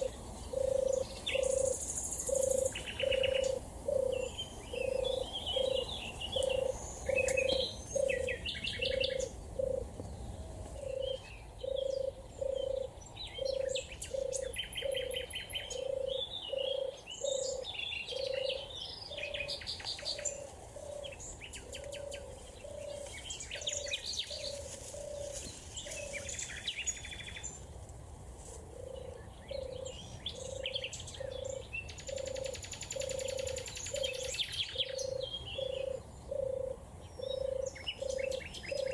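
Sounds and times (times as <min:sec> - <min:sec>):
dove purring: 0:00.0 - 0:19.4, 0:28.7 - 0:38.9
songbirds chirping and trilling: 0:00.0 - 0:38.9.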